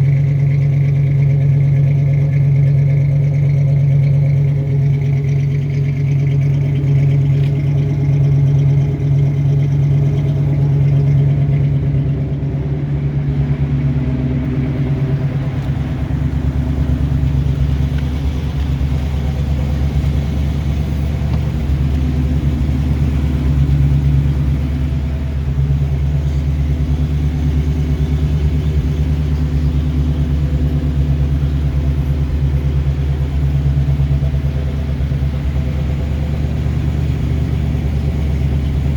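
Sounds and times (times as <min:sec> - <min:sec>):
car engine running steadily: 0:00.0 - 0:38.9.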